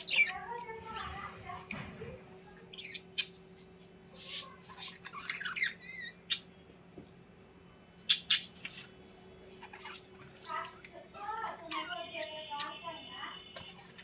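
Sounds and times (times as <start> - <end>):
bird squawking and chirping: 0.0 - 1.2, 2.7 - 3.4, 4.2 - 6.5, 8.1 - 12.8.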